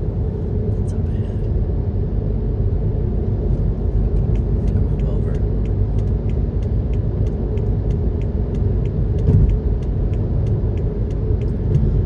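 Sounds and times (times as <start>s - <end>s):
road and engine rumble: 0.0s - 12.0s
turn signal ticking: 4.0s - 12.0s.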